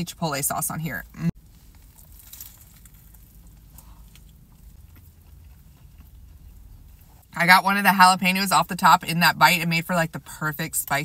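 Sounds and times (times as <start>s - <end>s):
biting into a sandwich: 1.6s - 7.2s
closed-mouth chewing with clicks: 2.7s - 7.3s.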